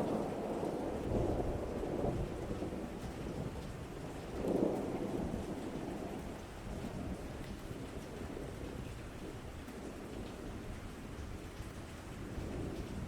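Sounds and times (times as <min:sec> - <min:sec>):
low rolling thunder: 0:00.0 - 0:07.3, 0:12.2 - 0:13.0
rain: 0:00.0 - 0:13.0.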